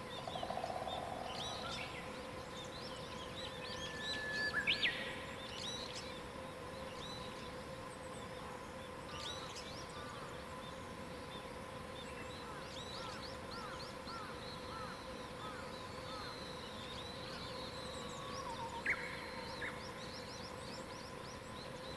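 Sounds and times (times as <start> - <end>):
birds singing and calling: 0.0 - 6.0
faint steady hum: 0.0 - 21.9.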